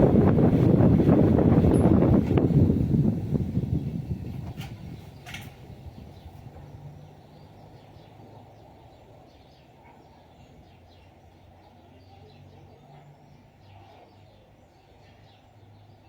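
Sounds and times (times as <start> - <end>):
electric fan whirring: 0.0 - 7.7
birds chirping: 0.0 - 16.0.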